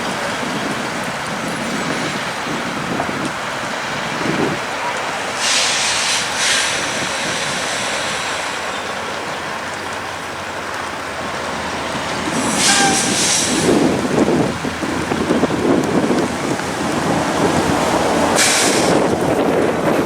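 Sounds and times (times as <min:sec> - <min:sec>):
trucks rumbling past: 0:00.0 - 0:20.0
wind buffeting microphone: 0:00.0 - 0:20.0
high hiss burst: 0:05.3 - 0:08.9, 0:12.3 - 0:13.8, 0:18.3 - 0:19.1.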